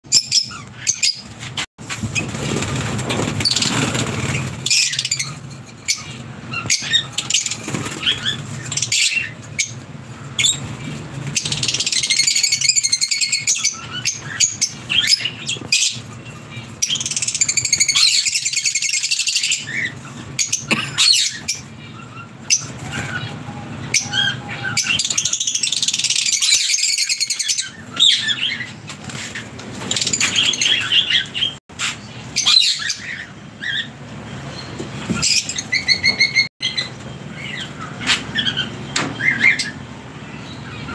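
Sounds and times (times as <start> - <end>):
small birds chirping: 0.0 - 40.9
wings fluttering: 0.5 - 21.7, 26.0 - 32.0.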